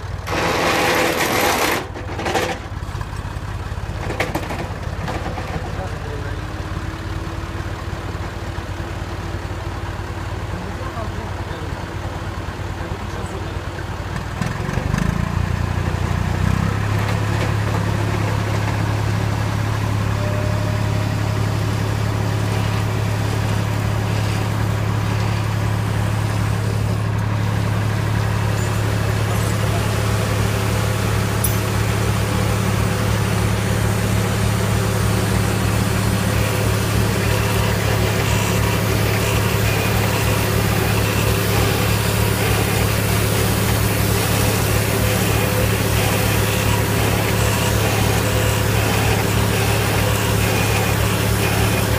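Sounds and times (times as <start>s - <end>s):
tractor engine humming: 0.0s - 51.9s.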